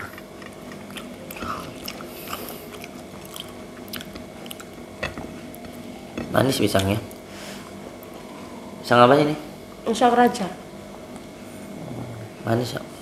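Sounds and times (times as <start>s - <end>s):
person chewing food: 0.0s - 6.9s.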